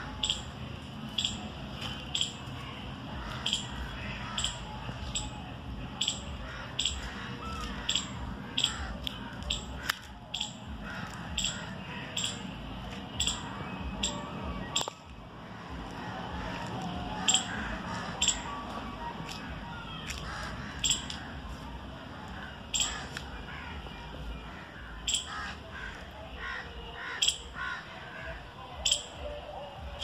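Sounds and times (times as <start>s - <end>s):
birds calling: 0.0s - 30.0s
crows cawing: 3.1s - 4.8s, 6.0s - 12.5s, 15.5s - 18.6s, 20.1s - 23.8s, 24.5s - 28.4s.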